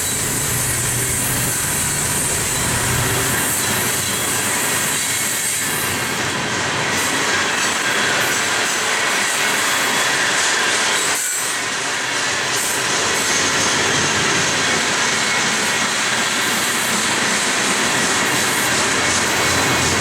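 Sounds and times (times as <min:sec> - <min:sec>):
high wheel squeal: 0:00.0 - 0:06.0, 0:12.7 - 0:20.0
train wheels rolling on rail: 0:00.0 - 0:20.0.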